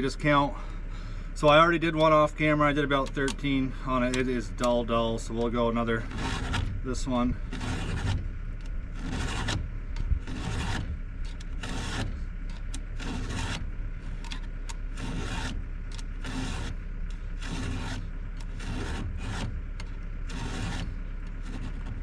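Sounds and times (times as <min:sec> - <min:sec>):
file rasping on saw chain: 0:05.8 - 0:08.3, 0:08.9 - 0:14.3, 0:14.9 - 0:22.0.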